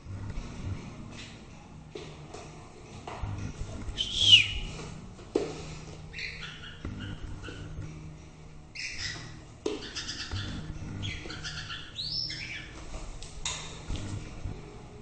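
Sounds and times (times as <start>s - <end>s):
bird singing whistles and chirps: 4.0s - 4.7s, 6.1s - 7.7s, 8.8s - 12.7s.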